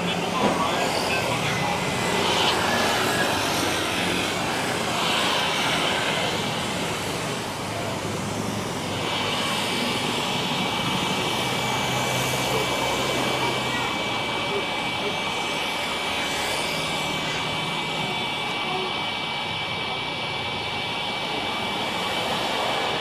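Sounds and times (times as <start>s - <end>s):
high jet engine whine: 0.0s - 23.0s
jet engines roaring: 0.0s - 23.0s.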